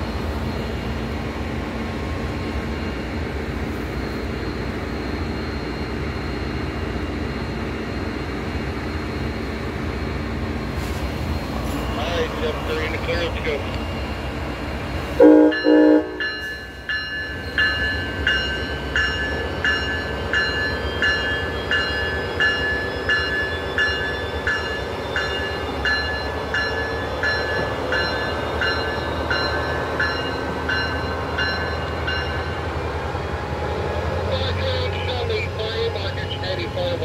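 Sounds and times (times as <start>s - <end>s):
train rumbling: 0.0s - 37.0s
train horn blast: 15.2s - 16.3s
warning bell ringing: 15.3s - 32.6s.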